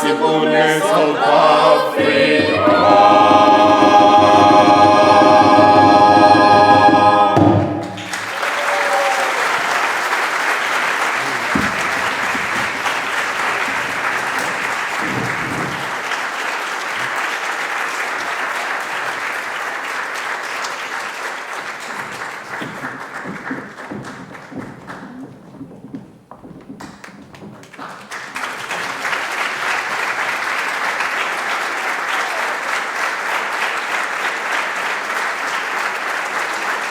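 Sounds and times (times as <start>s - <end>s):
a cappella vocal ensemble: 0.0s - 8.3s
audience applause: 7.8s - 25.2s, 27.6s - 36.9s.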